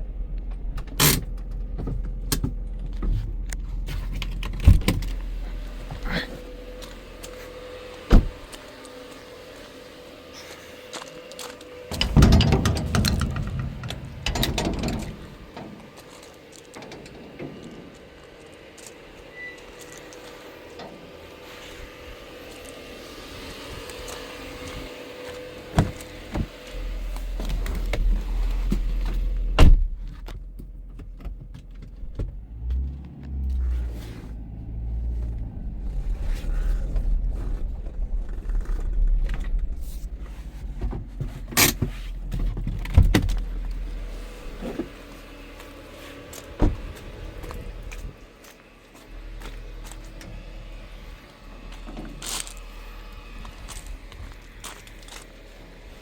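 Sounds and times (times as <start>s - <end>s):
low uneven rumble: 0.0s - 23.8s, 31.9s - 56.0s
car door clicks and knocks: 11.9s - 15.8s.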